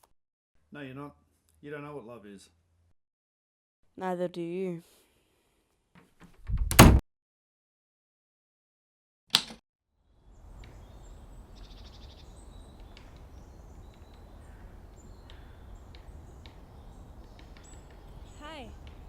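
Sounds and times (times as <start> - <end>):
small birds chirping: 10.1 - 19.0.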